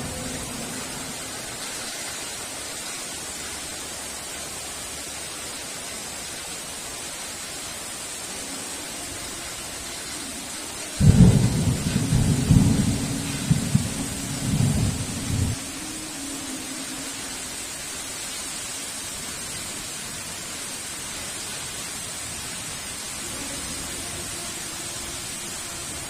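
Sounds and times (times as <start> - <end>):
heavy rain: 0.0 - 26.0
thunder clap and rumble: 11.0 - 15.6.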